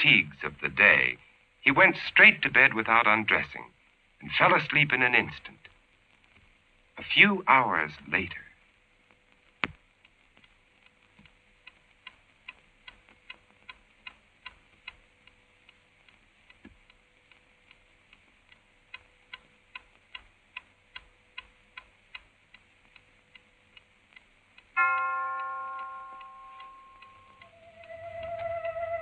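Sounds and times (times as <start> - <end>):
clock ticking: 11.6 - 29.0
bell-like chime: 24.8 - 27.8.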